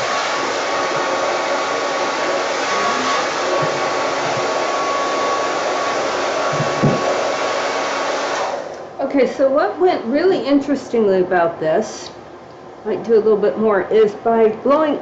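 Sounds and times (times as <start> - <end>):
hair dryer blowing: 0.0 - 8.9
knock: 3.5 - 4.5, 6.5 - 7.2.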